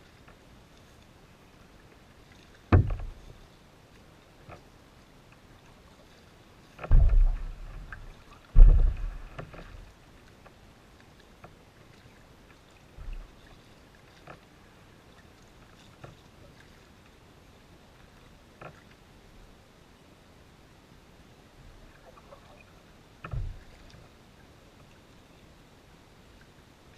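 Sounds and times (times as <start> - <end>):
kayak paddle thumps: 2.7 - 3.2, 6.8 - 9.8, 23.3 - 23.6.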